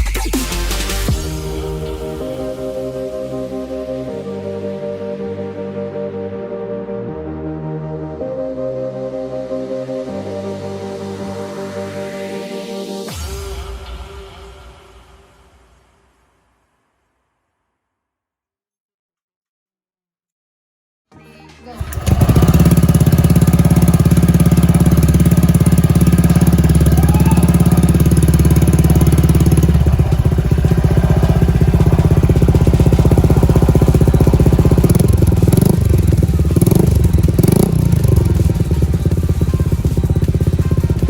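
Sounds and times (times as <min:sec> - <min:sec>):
background music: 0:00.0 - 0:16.0, 0:21.1 - 0:41.0
scooter engine revving: 0:21.8 - 0:41.0.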